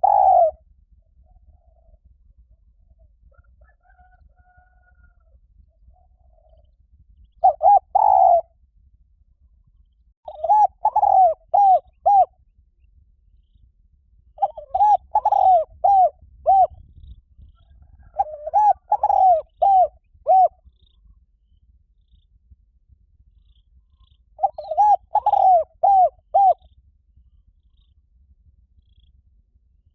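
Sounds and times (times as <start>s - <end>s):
dove cooing: 0.0s - 0.6s, 7.4s - 8.5s, 10.3s - 12.3s, 14.4s - 16.8s, 17.7s - 20.6s, 24.0s - 26.7s.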